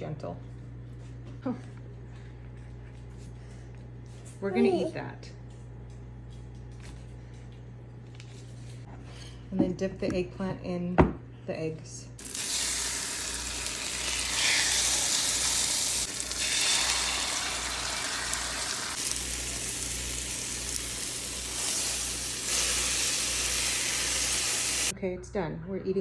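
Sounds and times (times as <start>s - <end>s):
eggplant sizzling in hot oil: 12.2s - 24.9s.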